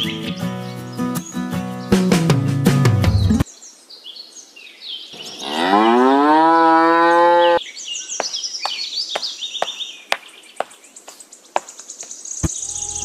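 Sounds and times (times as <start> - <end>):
bird chirps: 0.0 - 2.1, 3.1 - 6.2, 6.9 - 13.0
cow mooing: 5.3 - 7.6.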